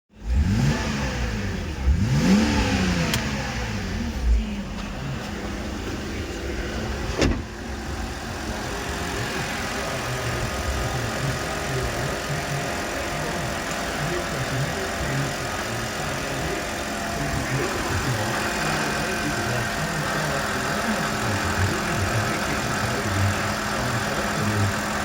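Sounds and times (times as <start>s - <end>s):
engine revving and idling: 0.1s - 25.0s
sharp click: 3.1s - 3.4s.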